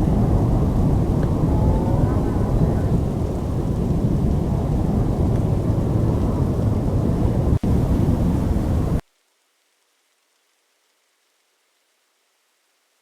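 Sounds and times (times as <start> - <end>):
storm wind rumble: 0.0 - 9.0.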